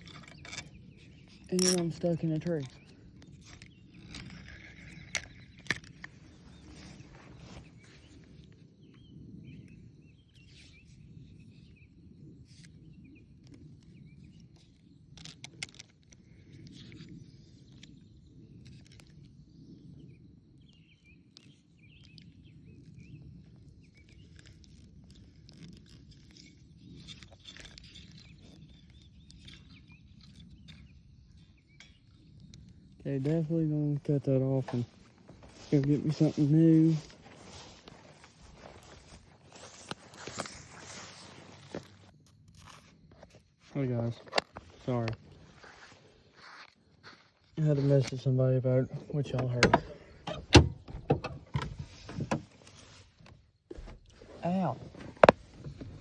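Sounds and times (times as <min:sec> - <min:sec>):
birds chirping: 0:00.0 - 0:12.1, 0:26.9 - 0:42.1, 0:43.6 - 0:53.0, 0:53.7 - 0:56.0.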